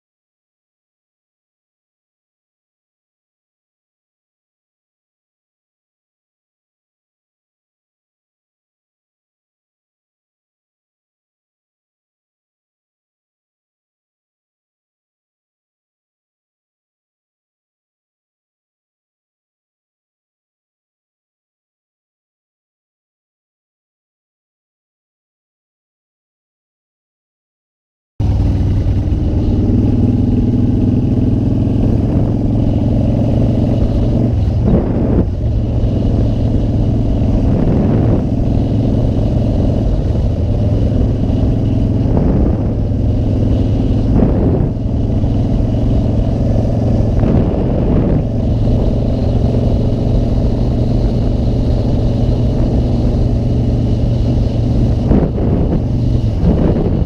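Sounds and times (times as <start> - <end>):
motorcycle engine shifting gears: 28.2 - 57.0.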